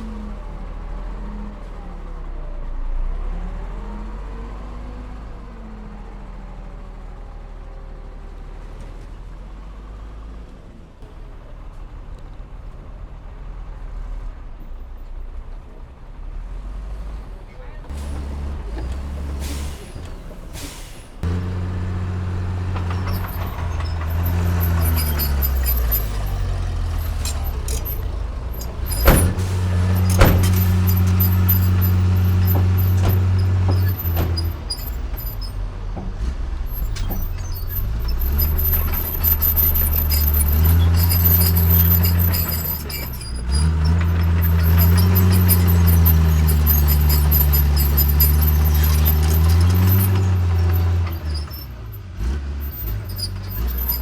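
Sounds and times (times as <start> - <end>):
heavy diesel engine under load: 0.0 - 54.0.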